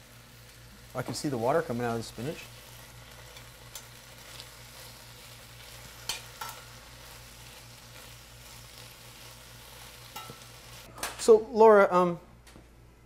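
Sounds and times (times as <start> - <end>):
leaves sizzling in hot oil: 0.0 - 10.9
tongs clicking against pan: 3.3 - 4.5, 6.0 - 6.7, 10.1 - 10.4.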